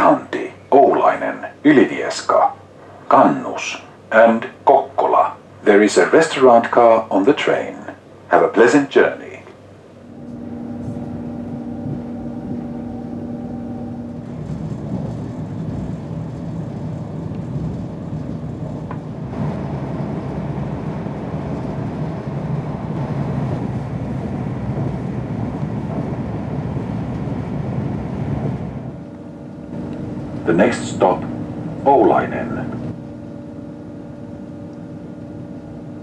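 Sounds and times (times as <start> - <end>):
hum of steady tones: 0.0 - 36.0
train running rumble: 0.0 - 36.0.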